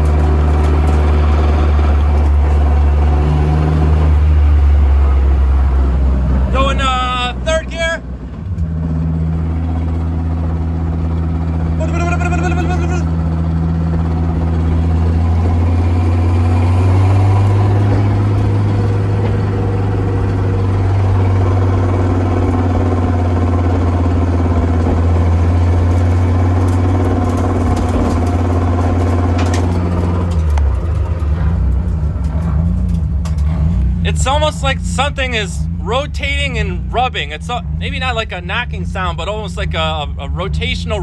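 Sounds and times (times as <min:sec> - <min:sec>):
deep engine drone in car cabin: 0:00.0 - 0:41.0.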